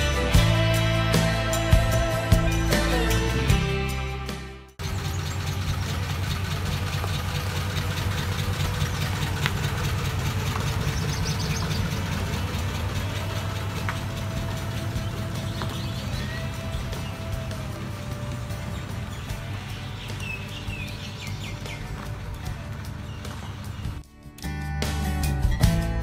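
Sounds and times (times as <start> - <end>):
car engine idling: 4.8 - 24.0.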